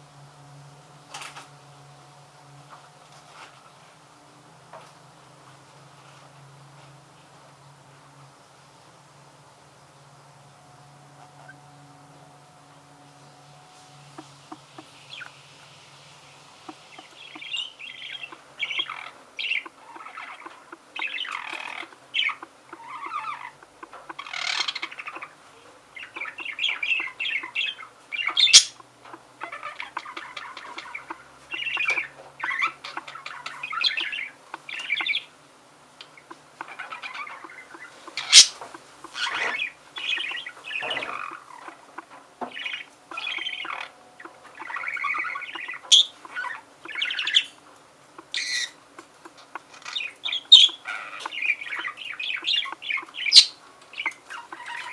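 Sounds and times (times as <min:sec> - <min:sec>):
budgerigar squawks: 0:16.7 - 0:25.4, 0:29.4 - 0:35.2, 0:36.2 - 0:47.5, 0:48.2 - 0:54.9
budgerigar warbling: 0:16.7 - 0:25.4, 0:26.0 - 0:35.3, 0:36.1 - 0:47.6, 0:48.2 - 0:54.9.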